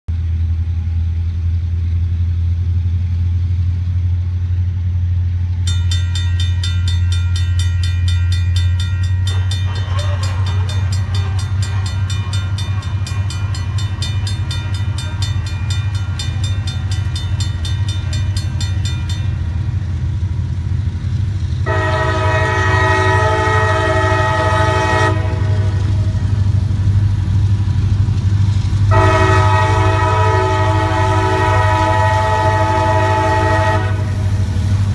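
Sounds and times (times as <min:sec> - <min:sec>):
diesel locomotive engine rumble: 0:00.1 - 0:34.9
bell ringing rapidly: 0:05.7 - 0:19.5
train horn blast: 0:09.2 - 0:16.4, 0:21.6 - 0:26.2, 0:28.9 - 0:34.4.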